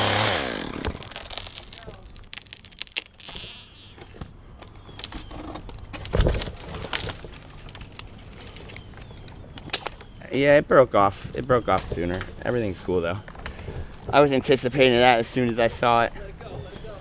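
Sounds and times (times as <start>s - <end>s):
wood snapping and cracking: 0.0s - 10.2s.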